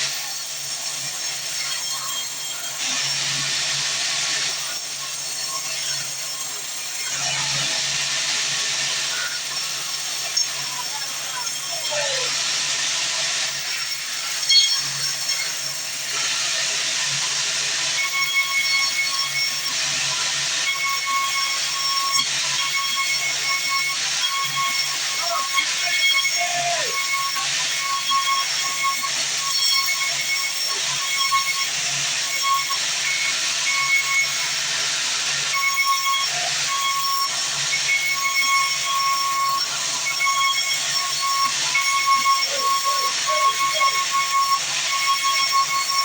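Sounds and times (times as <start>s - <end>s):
bandsaw cutting through log: 0.0s - 46.0s
high saw whine: 0.0s - 46.0s
high whining tones: 35.6s - 46.0s.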